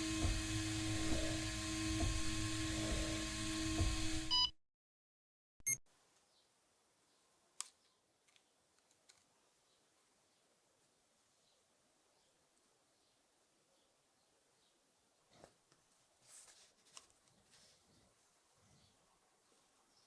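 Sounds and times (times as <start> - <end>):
motor-driven tool ticking: 0.0 - 4.3
faint clicks of small parts: 7.6 - 9.3.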